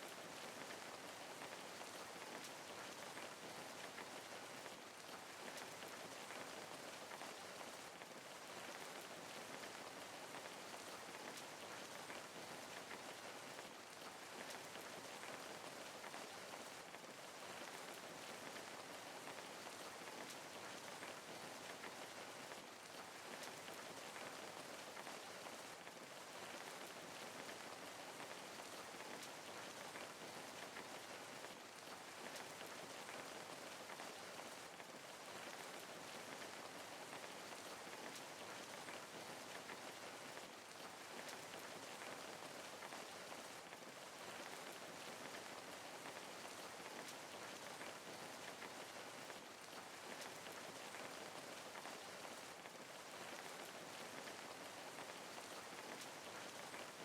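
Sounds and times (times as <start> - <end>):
rain patter: 0.0 - 57.0.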